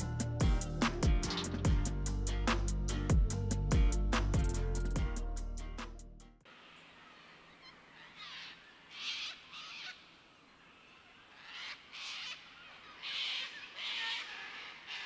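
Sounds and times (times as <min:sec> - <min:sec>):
quiet forest background: 0:00.0 - 0:05.8, 0:06.4 - 0:15.0
harsh bird calls: 0:06.8 - 0:15.0.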